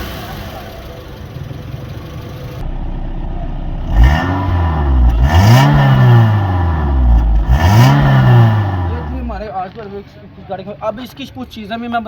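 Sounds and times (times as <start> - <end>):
car engine idling and revving: 0.0 - 9.5.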